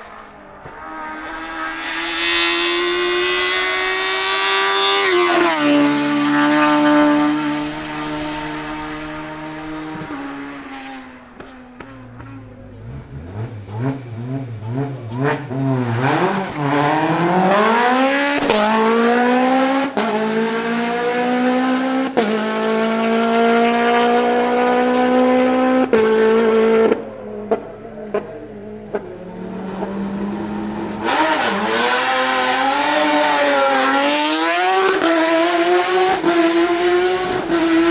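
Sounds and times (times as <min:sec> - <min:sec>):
race car engine accelerating: 0:00.0 - 0:37.9
exhaust pops: 0:07.8 - 0:17.7.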